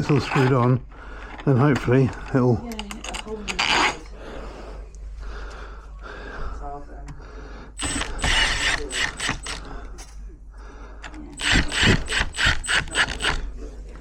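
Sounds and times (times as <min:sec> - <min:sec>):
ratchet screwdriver clicking: 0:07.8 - 0:09.6, 0:11.4 - 0:13.4.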